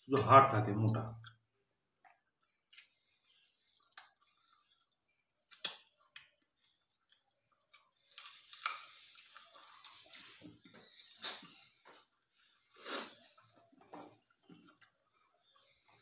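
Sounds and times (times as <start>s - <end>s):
people chewing food: 0.0s - 16.0s
mouth smacks and clicks: 0.9s - 10.3s, 11.1s - 11.6s.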